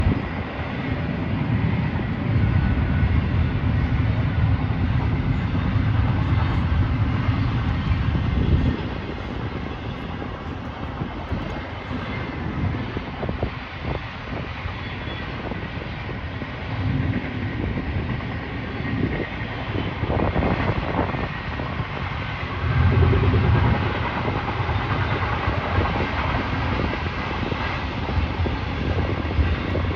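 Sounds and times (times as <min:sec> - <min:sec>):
freight train rumbling on rails: 0:00.0 - 0:29.9.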